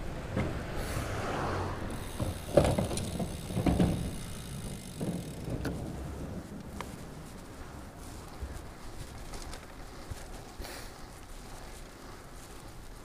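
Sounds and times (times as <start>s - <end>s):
bicycle knocks and rattles: 0.0s - 1.0s, 1.9s - 11.2s
road rumble: 0.0s - 13.0s
wind noise: 0.0s - 13.0s.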